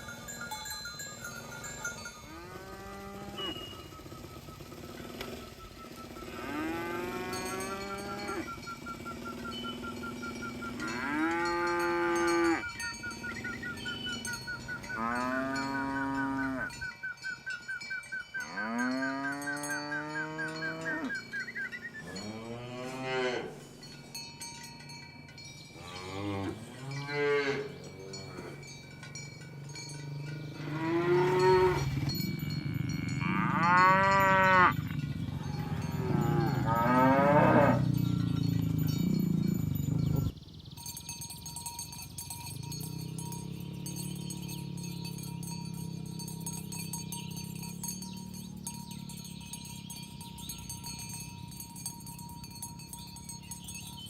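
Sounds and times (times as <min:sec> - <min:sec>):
cattle mooing: 0:02.3 - 0:04.2, 0:06.0 - 0:09.4, 0:10.3 - 0:16.8, 0:18.5 - 0:21.3, 0:22.0 - 0:23.6, 0:25.8 - 0:28.7, 0:30.2 - 0:39.0.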